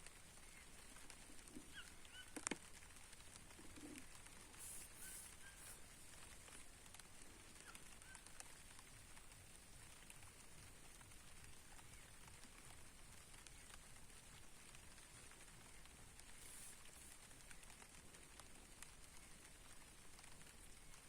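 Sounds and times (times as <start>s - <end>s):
faint birds chirping: 0.0s - 8.8s
light rain patter: 0.0s - 21.0s.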